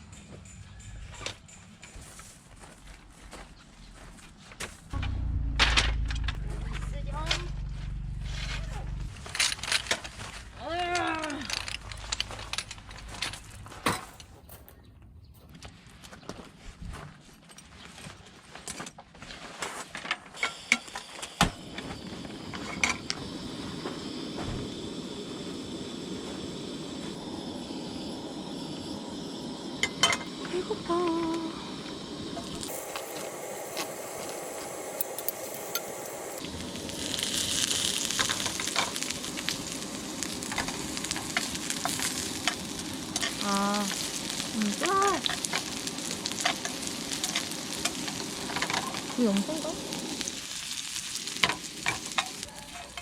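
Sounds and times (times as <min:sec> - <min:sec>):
steady low rushing noise: 0:05.0 - 0:13.8
food sizzling in a pan: 0:20.4 - 0:53.0.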